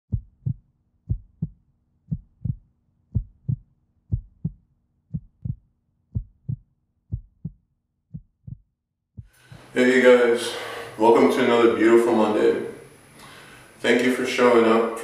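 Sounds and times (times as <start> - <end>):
heartbeat thumping: 0.1 - 9.7.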